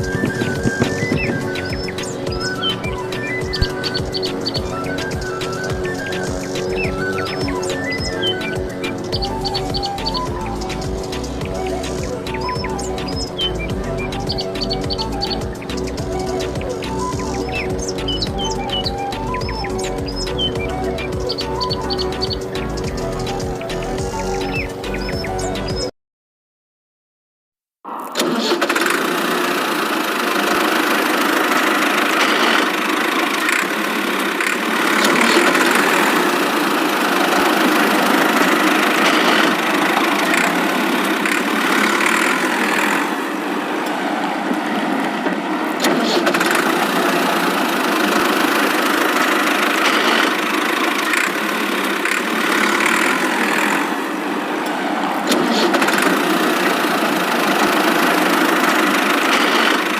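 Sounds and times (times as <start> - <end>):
engine running steadily: 0.0 - 25.9, 28.2 - 59.9.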